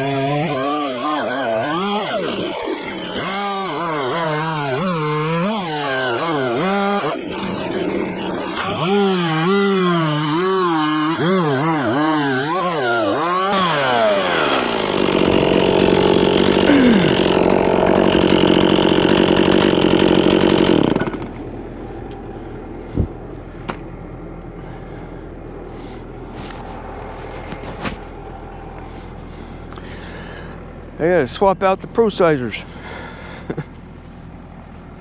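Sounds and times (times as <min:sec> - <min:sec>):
chainsaw cutting logs: 0:00.0 - 0:35.0
engine hum: 0:00.0 - 0:35.0
rushing machine noise: 0:13.3 - 0:22.1.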